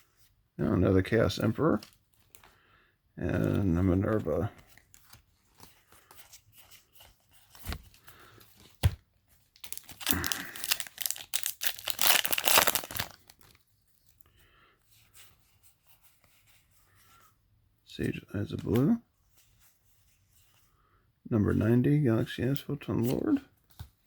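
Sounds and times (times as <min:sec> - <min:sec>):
foil pack tearing and rustling: 0:09.6 - 0:13.6.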